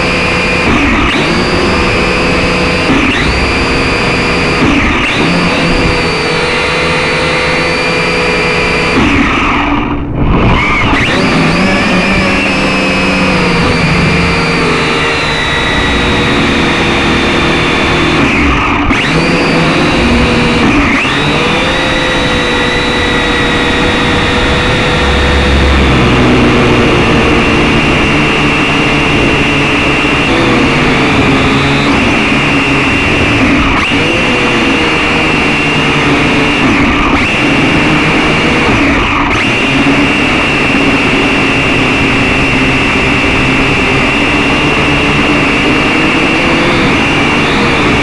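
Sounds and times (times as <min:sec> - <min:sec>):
toy drone motors whining: 0:00.0 - 0:48.0
low wind rumble: 0:22.2 - 0:31.9.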